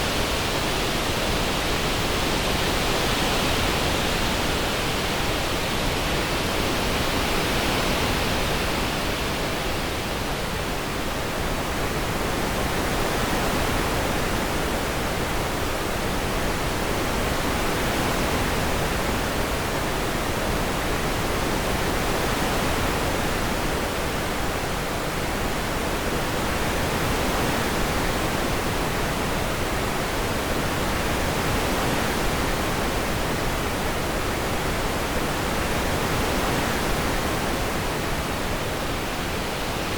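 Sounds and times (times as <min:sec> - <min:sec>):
synthesised wind-like hiss: 0:00.0 - 0:39.9.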